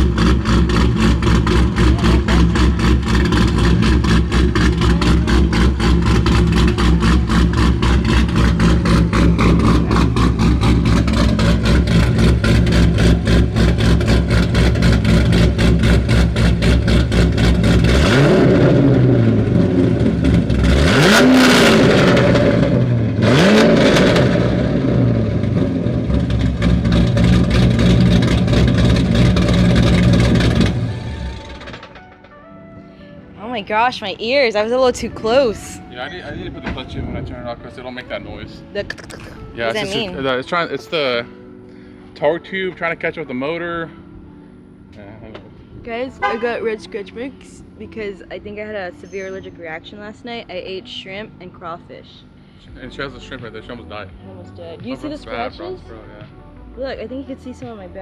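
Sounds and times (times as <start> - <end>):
quick throttle revs: 0.0 - 32.1
car engine idling choppy: 0.0 - 32.4.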